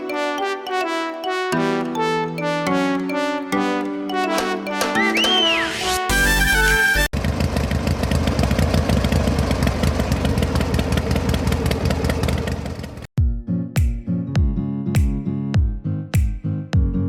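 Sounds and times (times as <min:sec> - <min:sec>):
music: 0:00.0 - 0:07.1, 0:13.2 - 0:17.0
diesel engine chugging: 0:07.2 - 0:13.1.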